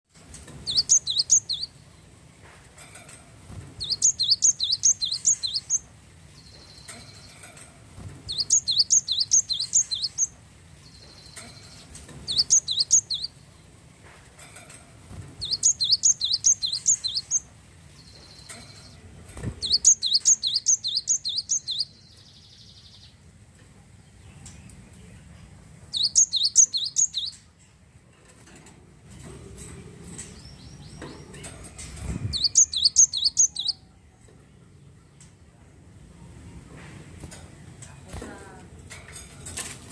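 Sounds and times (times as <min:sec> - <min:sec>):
bird singing rapid falling notes: 0:00.5 - 0:02.1, 0:03.8 - 0:07.4, 0:08.3 - 0:13.6, 0:15.4 - 0:19.0, 0:19.6 - 0:23.2, 0:25.9 - 0:27.4, 0:32.2 - 0:34.0.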